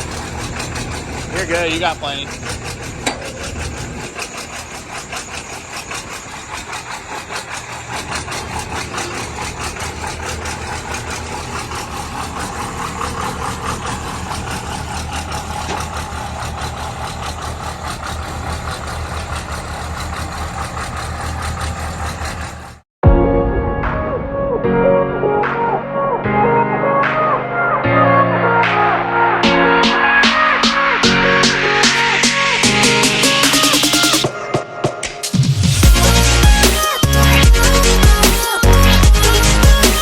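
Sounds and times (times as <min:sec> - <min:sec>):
truck engine idling: 0:00.0 - 0:22.9, 0:35.8 - 0:40.0.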